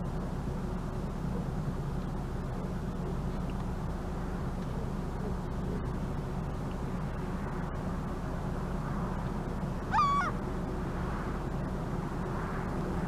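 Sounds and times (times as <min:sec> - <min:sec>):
gull call: 0:09.8 - 0:10.4.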